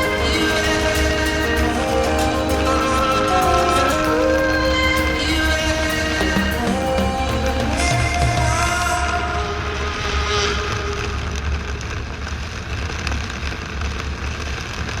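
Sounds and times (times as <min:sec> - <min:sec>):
music: 0:00.0 - 0:09.6.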